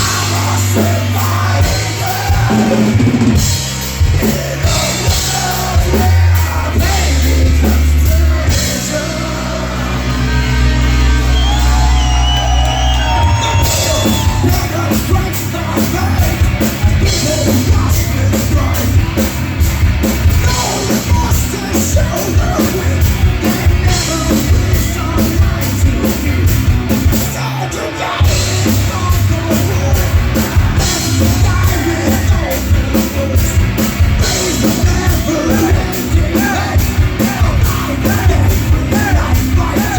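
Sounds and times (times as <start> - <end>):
person singing: 0.0 - 11.9, 13.0 - 19.4, 20.2 - 39.9
live heavy rock band: 0.0 - 39.9.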